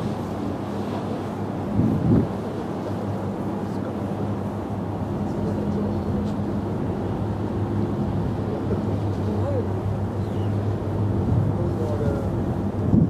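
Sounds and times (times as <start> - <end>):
wind on microphone: 0.0 - 2.8, 6.1 - 13.0
low engine-like hum: 0.0 - 13.0.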